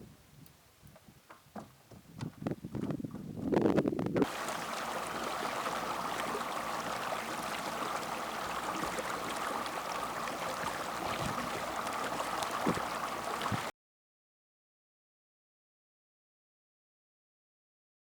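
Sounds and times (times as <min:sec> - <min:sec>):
water rushing: 0:04.2 - 0:13.7.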